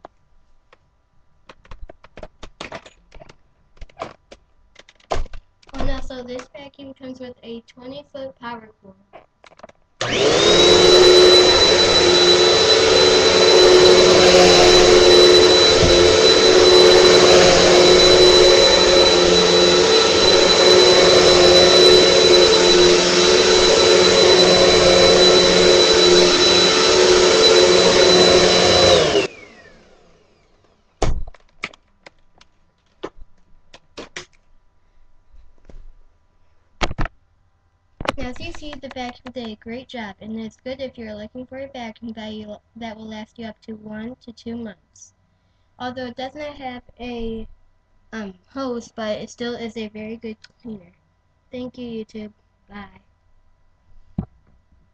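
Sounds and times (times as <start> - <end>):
vacuum cleaner motor whine: 10.0 - 30.8.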